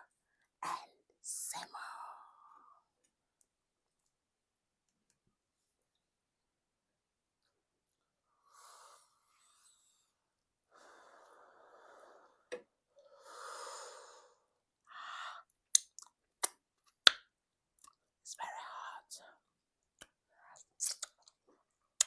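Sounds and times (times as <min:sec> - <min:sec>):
wet mouth clicks: 0:15.7 - 0:17.2, 0:20.0 - 0:21.4.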